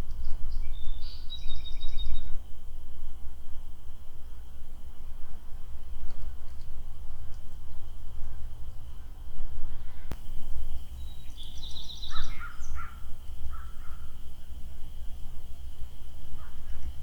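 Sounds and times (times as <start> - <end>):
birds calling: 10.8 - 14.1.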